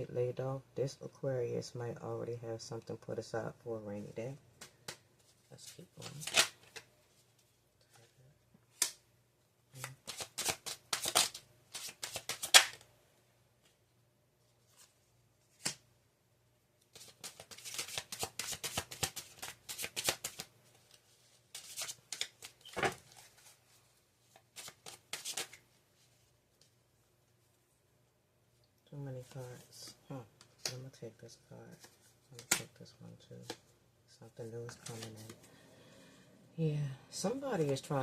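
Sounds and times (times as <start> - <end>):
cards being shuffled: 4.6 - 8.0, 9.8 - 12.8, 16.9 - 26.7, 31.7 - 32.7, 34.6 - 35.5.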